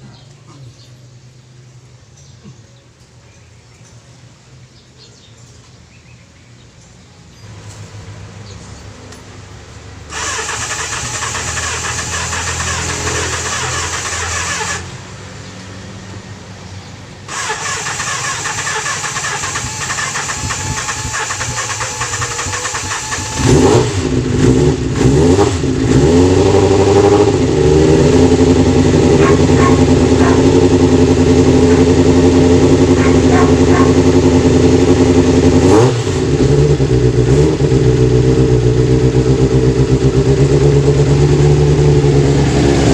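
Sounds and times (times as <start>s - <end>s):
motorcycle engine revving: 7.5s - 16.5s, 17.2s - 42.9s
electric starter cranking: 10.1s - 15.0s, 17.3s - 24.0s.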